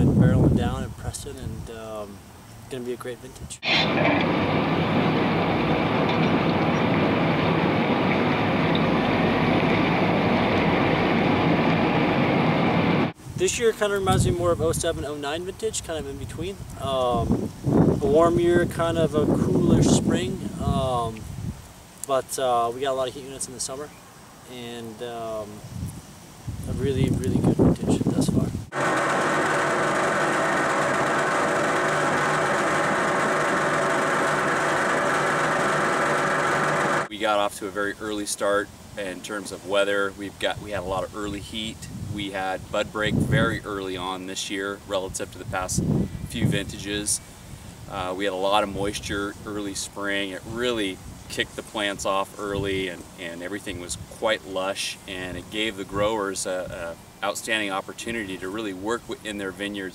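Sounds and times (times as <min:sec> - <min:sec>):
machinery running: 0:03.6 - 0:13.2, 0:28.7 - 0:37.1
machine motor humming: 0:28.7 - 0:37.1.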